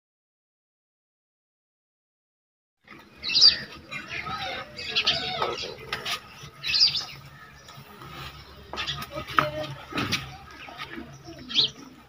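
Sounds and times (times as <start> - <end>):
birds squawking: 3.0 - 12.0.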